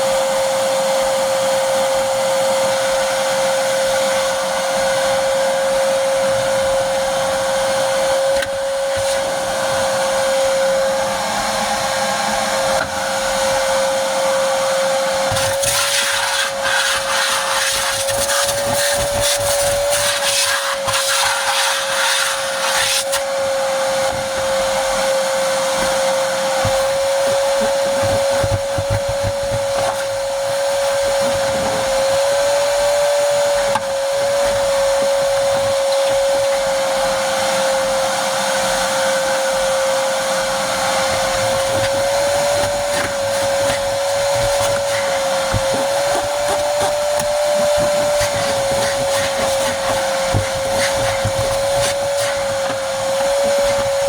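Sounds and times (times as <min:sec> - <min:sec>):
vacuum cleaner whine: 0:00.0 - 0:54.0.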